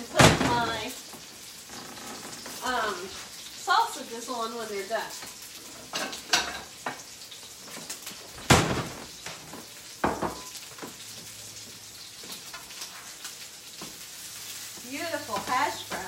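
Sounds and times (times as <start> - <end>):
meat sizzling in skillets: 0.0 - 16.0
utensils and dishes clinking: 5.2 - 7.1.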